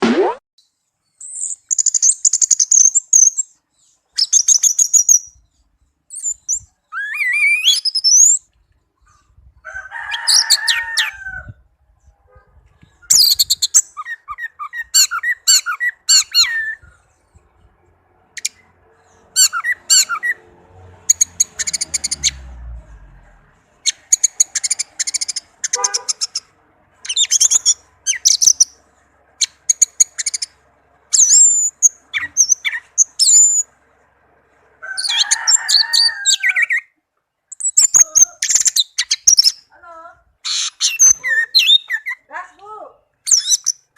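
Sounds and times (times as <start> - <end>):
thrush singing whistled trills: 0.1 - 8.6, 12.9 - 17.2, 19.3 - 20.4, 23.8 - 28.8, 29.4 - 33.7, 36.4 - 39.7, 40.5 - 42.3, 43.2 - 43.9.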